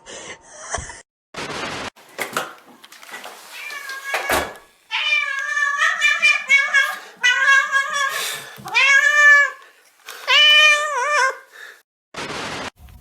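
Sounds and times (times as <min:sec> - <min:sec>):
cat meowing: 0:03.5 - 0:09.7, 0:10.3 - 0:11.5.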